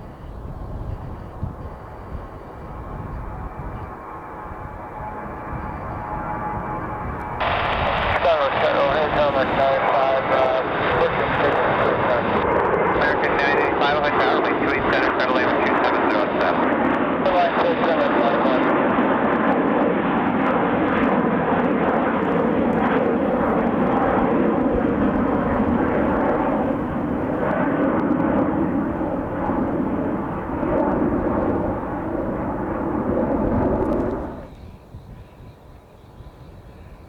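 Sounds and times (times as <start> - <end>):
jet engines roaring: 0.0 - 34.6.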